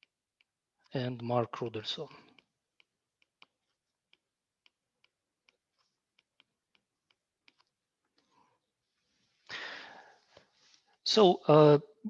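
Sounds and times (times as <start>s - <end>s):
faint irregular clicks and taps: 0.0s - 1.3s, 2.0s - 9.5s.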